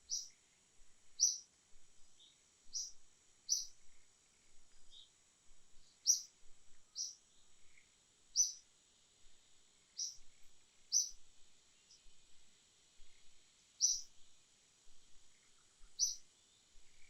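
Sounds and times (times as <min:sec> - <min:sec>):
bird chirping: 0:00.0 - 0:00.4, 0:01.2 - 0:01.5, 0:02.2 - 0:05.2, 0:05.8 - 0:08.6, 0:09.9 - 0:12.2, 0:13.0 - 0:14.2, 0:15.2 - 0:17.0
insects buzzing: 0:00.0 - 0:01.5, 0:02.1 - 0:05.1, 0:05.8 - 0:17.0.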